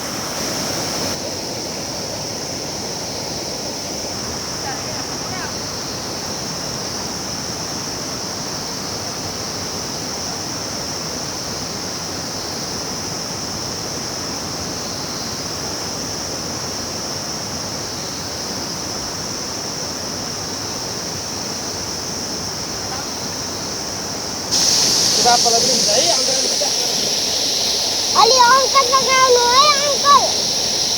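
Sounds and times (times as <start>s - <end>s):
high-pitched hiss: 0.0s - 7.4s, 21.0s - 30.9s
river water rushing: 24.4s - 30.9s.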